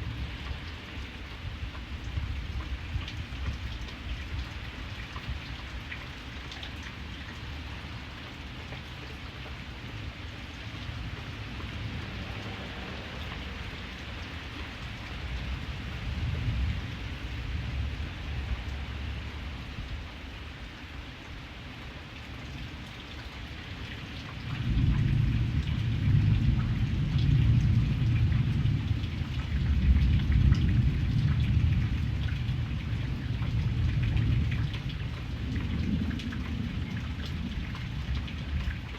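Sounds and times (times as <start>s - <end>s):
rain falling: 0.0s - 38.9s
thunder rumbling: 24.5s - 38.9s.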